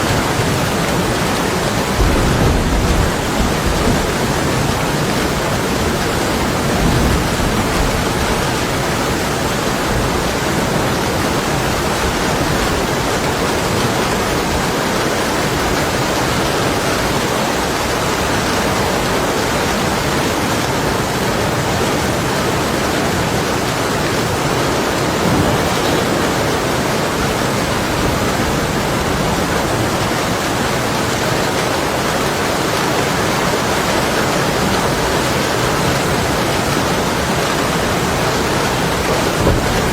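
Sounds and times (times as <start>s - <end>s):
heavy rain on window glass: 0.0s - 39.9s
distant thunder rumbling: 0.1s - 12.8s, 25.0s - 30.4s, 37.6s - 39.9s.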